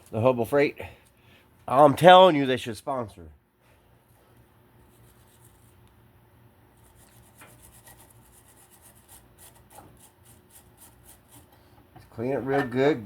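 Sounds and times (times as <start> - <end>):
wire brush scrubbing rusty metal: 6.8 - 11.6.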